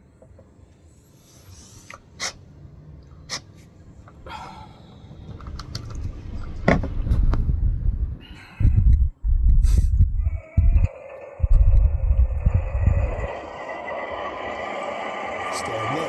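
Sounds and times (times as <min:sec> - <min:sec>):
low rumble: 0:04.9 - 0:15.5.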